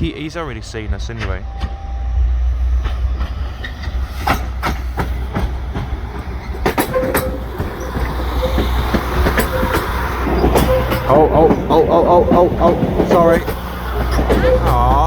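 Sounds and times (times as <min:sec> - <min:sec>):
train engine rumble: 0:00.0 - 0:15.0
wheels clicking over rail joints: 0:00.1 - 0:15.0.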